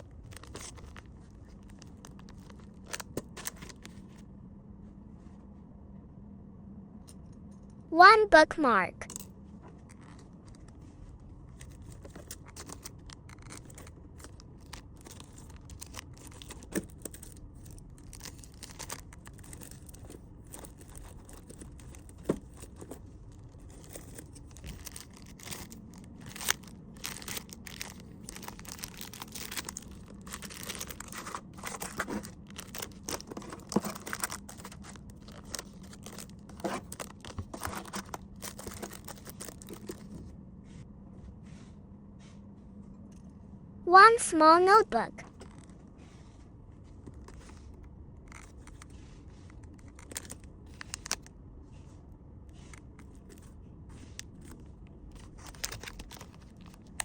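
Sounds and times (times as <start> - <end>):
plastic packaging crinkling: 0.0 - 4.2, 11.6 - 40.3, 48.3 - 51.3, 53.0 - 57.0.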